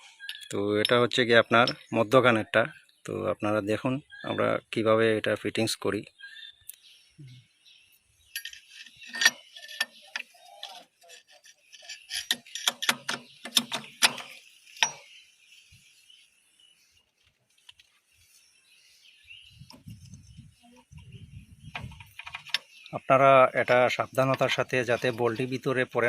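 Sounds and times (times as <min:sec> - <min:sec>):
steel parts clinking: 0:00.2 - 0:01.9, 0:08.3 - 0:15.1, 0:21.7 - 0:22.7.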